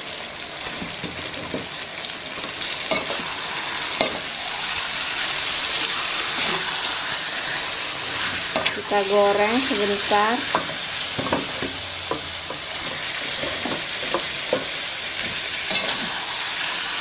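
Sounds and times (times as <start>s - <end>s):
chicken sizzling in a wok: 0.0s - 17.0s
metal spatula scraping a wok: 2.8s - 4.4s, 11.4s - 14.4s, 15.6s - 16.2s.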